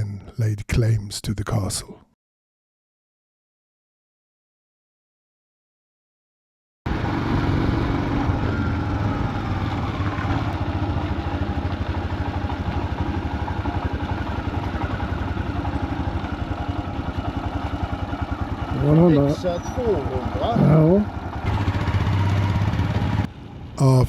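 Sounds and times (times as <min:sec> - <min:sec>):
motorcycle engine idling: 0:08.0 - 0:23.7.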